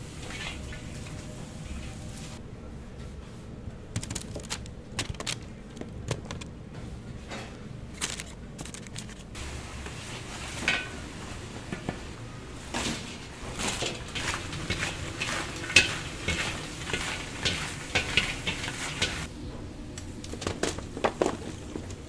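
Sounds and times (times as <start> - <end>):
steady low hum: 0.0 - 22.0
utensils and containers clacking: 7.3 - 19.3.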